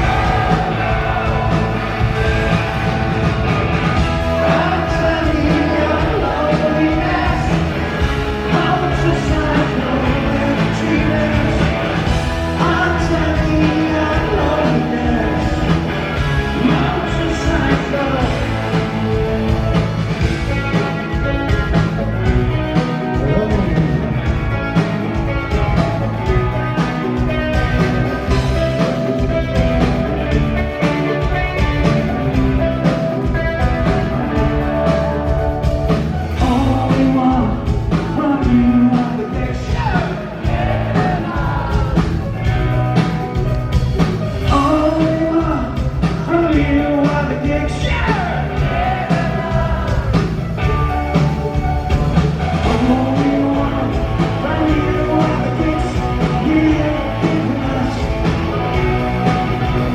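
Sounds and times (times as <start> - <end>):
lead vocal singing: 0.0 - 21.2, 36.2 - 43.4, 44.3 - 51.6, 52.5 - 59.9
rock band playing live: 0.0 - 59.9.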